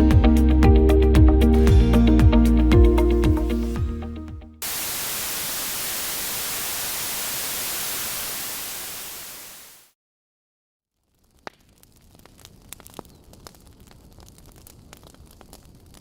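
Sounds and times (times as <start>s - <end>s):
music: 0.0s - 4.6s
white-noise static hiss: 4.6s - 9.9s.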